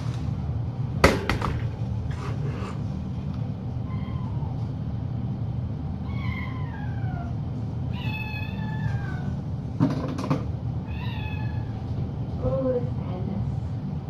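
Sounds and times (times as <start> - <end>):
steady low hum: 0.0 - 14.0
cat meowing: 3.8 - 4.6, 6.0 - 9.4, 10.8 - 11.8.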